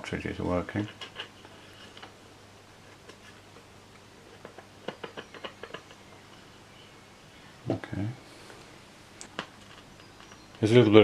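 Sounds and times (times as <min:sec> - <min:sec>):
low mains hum: 0:00.0 - 0:11.0
amplifier clicks and crackles: 0:09.1 - 0:10.7.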